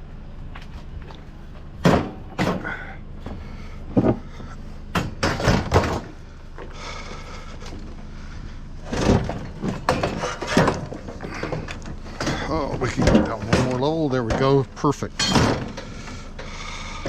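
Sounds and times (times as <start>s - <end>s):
scrap metal bangs and thuds: 1.7s - 6.2s, 8.8s - 16.7s.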